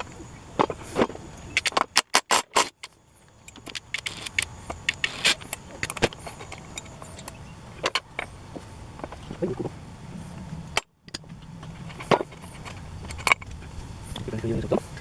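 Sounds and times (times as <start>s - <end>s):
metal tools clinking and knocking: 0.0s - 8.3s
scattered clicks: 0.0s - 8.3s.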